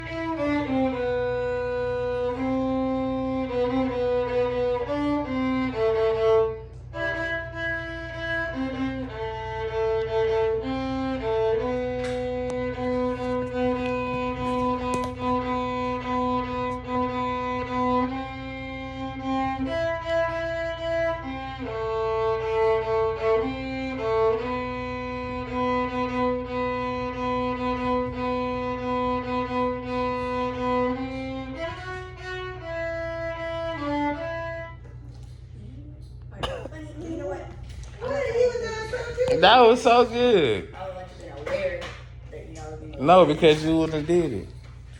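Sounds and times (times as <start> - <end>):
violin slow melody: 0.0 - 35.5.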